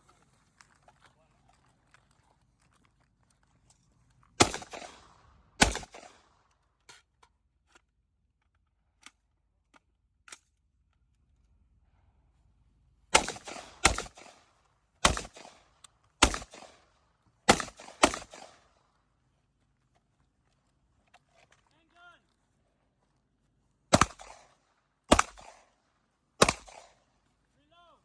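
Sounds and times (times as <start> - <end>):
faint gunshots: 4.4 - 6.2, 13.1 - 15.6, 16.2 - 16.8, 17.5 - 18.6, 23.9 - 25.7, 26.4 - 27.0
loud gunshots with echo: 4.4 - 6.2, 13.2 - 14.4, 15.0 - 15.6, 16.2 - 16.8, 17.5 - 18.6, 23.9 - 24.5, 25.1 - 25.6, 26.4 - 26.9.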